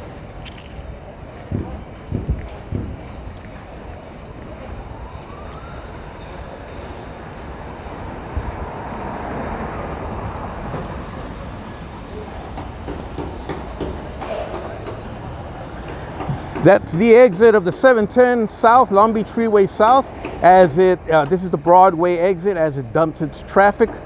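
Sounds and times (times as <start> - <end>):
passing vehicles rushing: 0.0 - 24.0
knocks: 1.5 - 3.1, 12.6 - 15.0.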